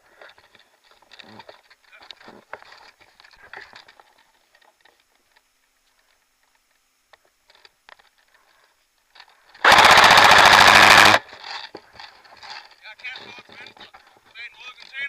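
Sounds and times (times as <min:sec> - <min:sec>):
airsoft rifle full-auto burst: 0:09.6 - 0:11.4.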